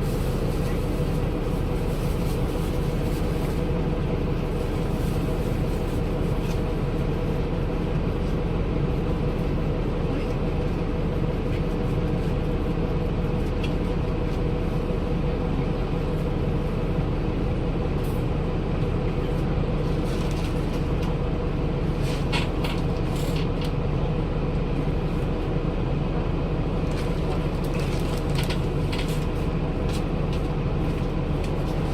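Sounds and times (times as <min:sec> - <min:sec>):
diesel bus engine running: 0:00.0 - 0:31.9.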